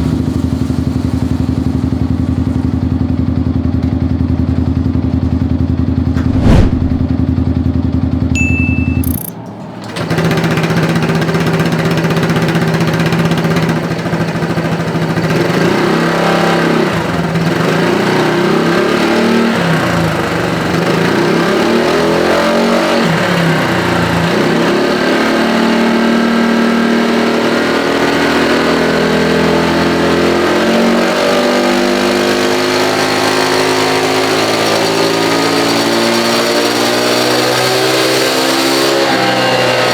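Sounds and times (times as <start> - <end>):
sharp thump: 6.1 - 7.1.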